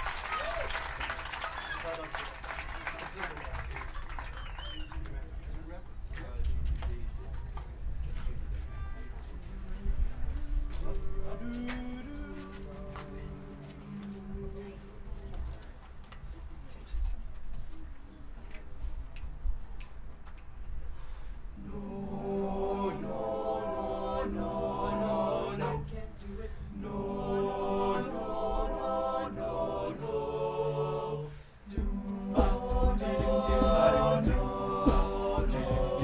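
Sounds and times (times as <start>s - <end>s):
male group singing chords: 21.6s - 36.0s.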